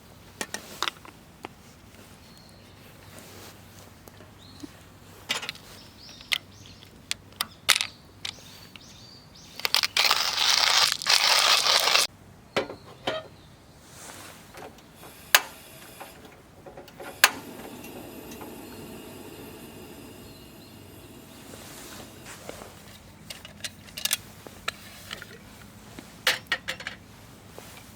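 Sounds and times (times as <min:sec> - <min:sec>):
low steady hiss: 0:13.5 - 0:27.9
loud rustling: 0:14.1 - 0:22.9
sharp clicks and knocks: 0:14.5 - 0:22.3.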